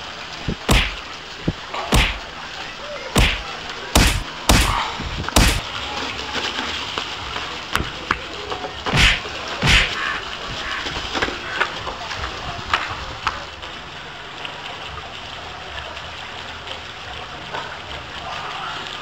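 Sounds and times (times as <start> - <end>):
steady hiss: 0.0 - 5.6, 8.9 - 10.0
sharp bangs: 0.4 - 2.3, 3.2 - 5.6, 8.9 - 10.0.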